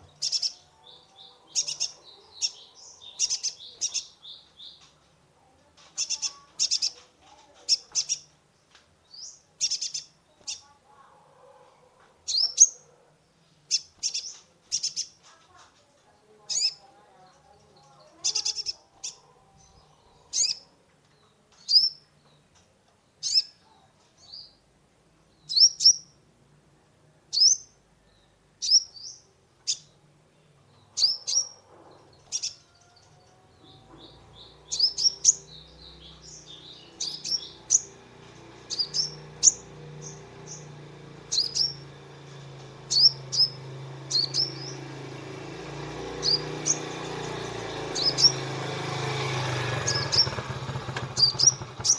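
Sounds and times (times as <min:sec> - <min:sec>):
sunbird chirping: 0:00.0 - 0:05.0, 0:09.0 - 0:10.7, 0:30.7 - 0:51.9.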